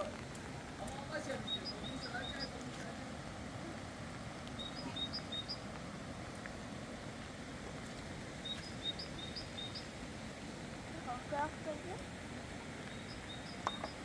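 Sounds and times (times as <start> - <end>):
outdoor background hiss: 0.0 - 14.0
small bird singing: 1.3 - 2.6, 4.6 - 5.6, 8.4 - 9.9, 12.9 - 14.0.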